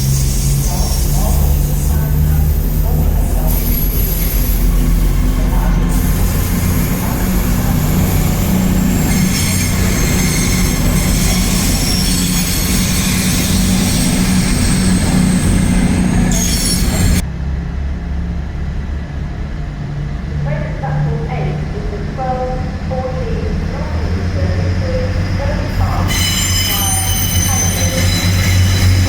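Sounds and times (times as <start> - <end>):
train wheels squealing on rails: 0.0 - 17.2, 25.1 - 29.0
train low hum: 0.0 - 29.0.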